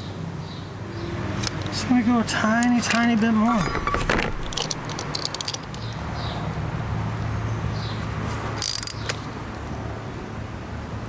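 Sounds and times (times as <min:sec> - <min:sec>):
chain tool metal click and rattle: 0:02.6 - 0:06.0, 0:08.6 - 0:09.2.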